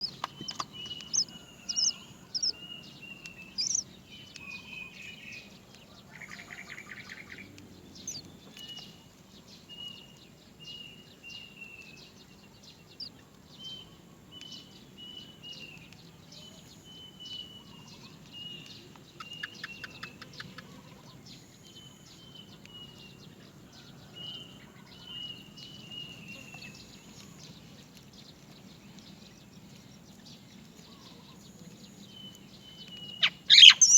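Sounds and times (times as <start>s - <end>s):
bird chick begging calls: 0.0s - 2.7s, 3.5s - 3.8s, 33.2s - 33.9s.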